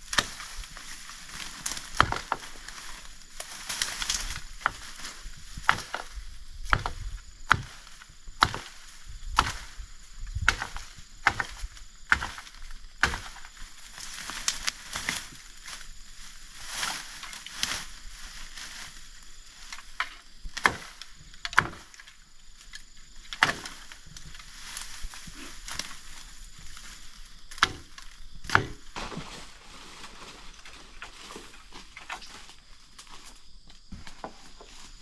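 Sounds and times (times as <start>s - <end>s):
blade chopping wood: 1.7s - 2.5s, 5.6s - 9.8s, 10.4s - 15.4s, 20.6s - 21.9s, 23.4s - 23.9s, 27.5s - 29.6s
rustling: 28.8s - 33.5s.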